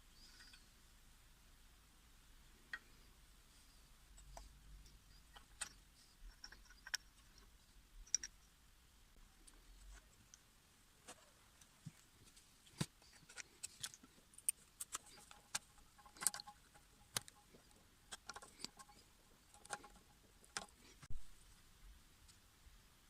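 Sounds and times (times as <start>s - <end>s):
metal parts and tools clicking: 4.9s - 8.6s, 13.0s - 21.1s.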